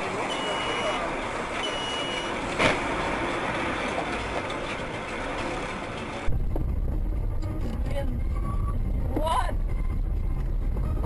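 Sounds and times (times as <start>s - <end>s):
car road noise: 0.0s - 11.0s
short high beep: 0.3s - 1.0s, 1.6s - 2.3s
low rumble: 2.4s - 11.0s.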